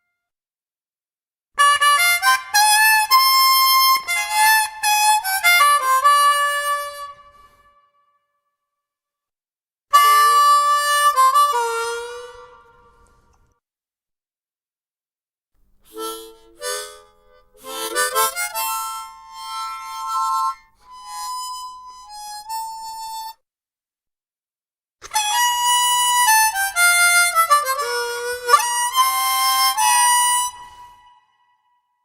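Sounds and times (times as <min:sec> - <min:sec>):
harmonica playing: 0:01.6 - 0:07.6, 0:09.9 - 0:13.3, 0:15.8 - 0:23.4, 0:25.0 - 0:31.5.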